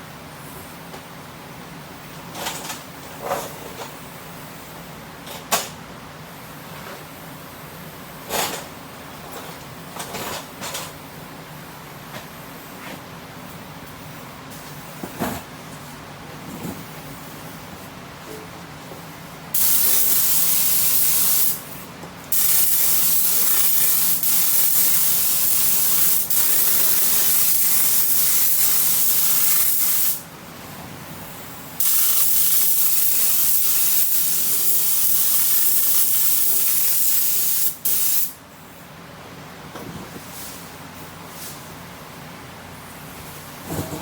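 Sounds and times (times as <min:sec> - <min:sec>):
paint spray gun hissing: 0:19.6 - 0:21.6, 0:22.3 - 0:30.2, 0:31.8 - 0:38.4.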